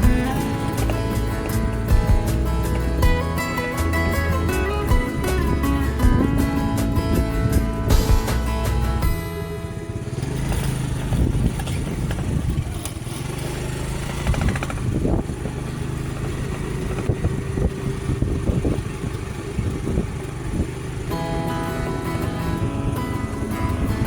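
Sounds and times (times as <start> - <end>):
background music: 0.0 - 10.8, 21.1 - 24.0
gusts of noise: 0.0 - 12.7
vehicle engine and road rumble: 0.0 - 24.0.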